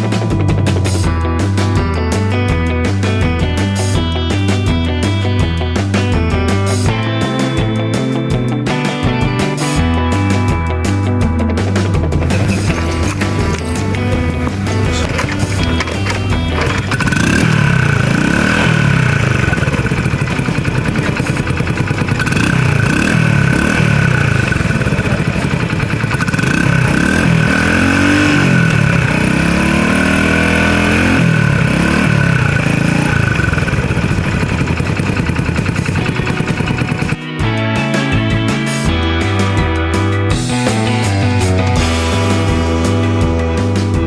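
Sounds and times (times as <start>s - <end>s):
motorcycle engine revving: 11.8s - 37.6s.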